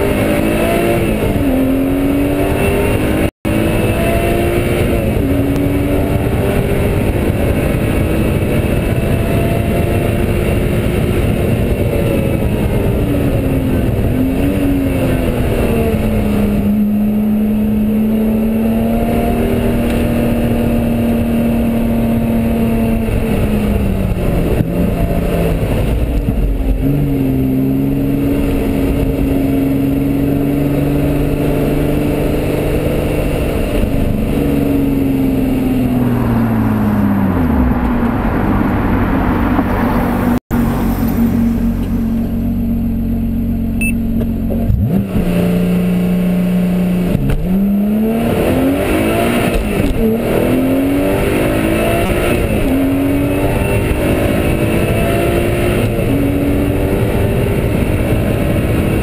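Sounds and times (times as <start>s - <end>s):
car engine at speed: 0.0s - 59.0s.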